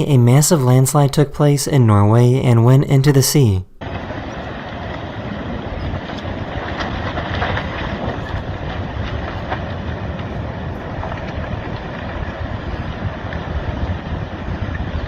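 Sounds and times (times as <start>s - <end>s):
landslide rumbling rush: 0.0s - 15.0s
faint cracks: 3.8s - 15.0s.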